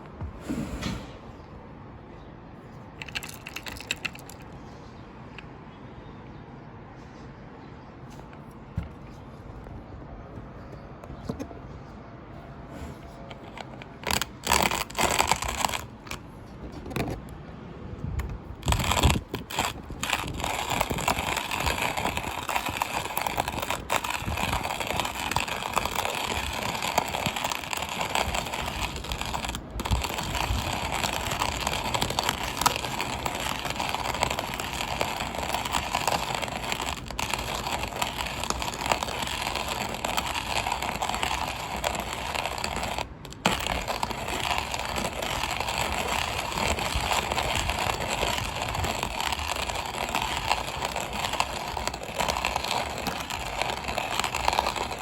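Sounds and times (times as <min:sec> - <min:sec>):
continuous gritty scraping: 0:02.7 - 0:05.4, 0:08.0 - 0:55.0
coffee grinder parts knocking: 0:03.0 - 0:04.4, 0:13.3 - 0:17.3, 0:18.2 - 0:55.0.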